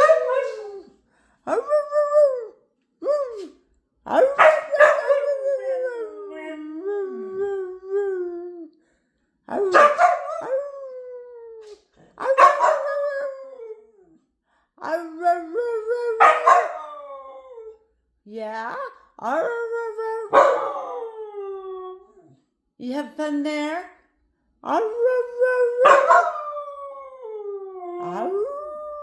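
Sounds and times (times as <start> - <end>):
dog howling: 0.0 - 0.9, 25.6 - 29.0.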